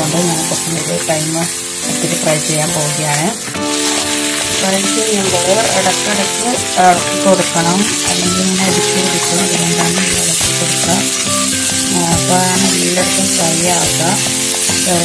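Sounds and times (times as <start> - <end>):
meat and onions sizzling in pan: 0.0 - 15.0
melodic background music: 0.0 - 15.0.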